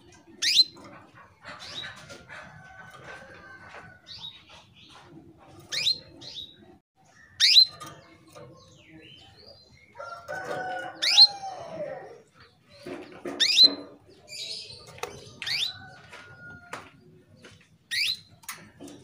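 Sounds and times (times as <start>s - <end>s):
canary calling: 0.3s - 2.7s, 3.6s - 12.4s, 13.3s - 15.9s.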